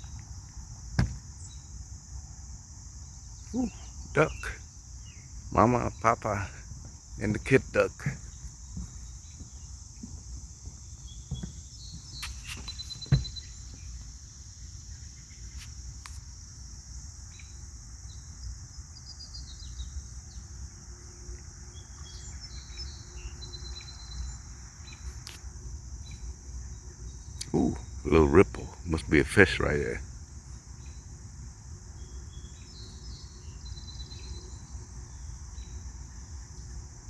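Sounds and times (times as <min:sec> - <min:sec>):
insect chorus: 0:00.0 - 0:37.0
sharp knock: 0:01.0 - 0:01.2
bird chirps: 0:11.0 - 0:14.0.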